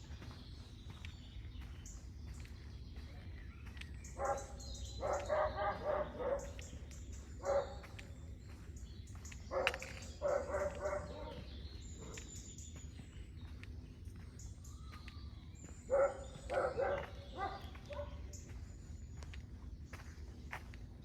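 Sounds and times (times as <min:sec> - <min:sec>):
birds chirping faintly: 0:00.0 - 0:21.0
dog barking: 0:04.2 - 0:06.7, 0:07.4 - 0:07.9, 0:09.5 - 0:12.3, 0:15.9 - 0:18.3.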